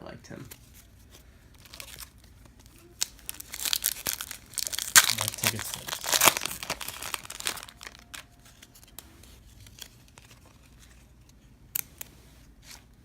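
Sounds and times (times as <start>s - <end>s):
wrapper crinkling: 0.5s - 10.9s.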